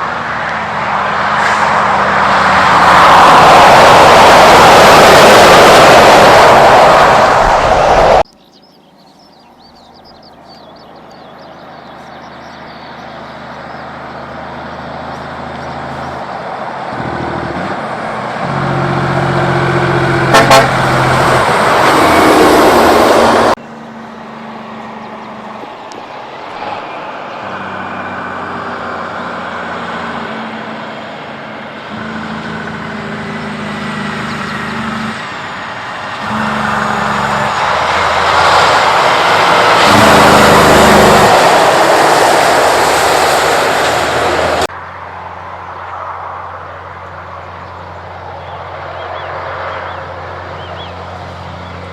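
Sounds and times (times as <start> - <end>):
truck diesel engines passing: 0.0 - 51.9
truck horn toots: 18.4 - 23.6, 31.9 - 33.3, 36.1 - 41.7.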